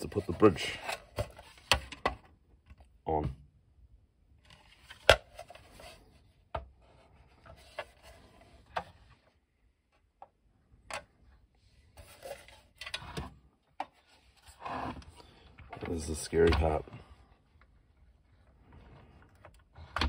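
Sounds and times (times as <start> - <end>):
plastic rubbing and scraping: 0.0 - 2.8, 4.4 - 9.4, 11.8 - 20.0.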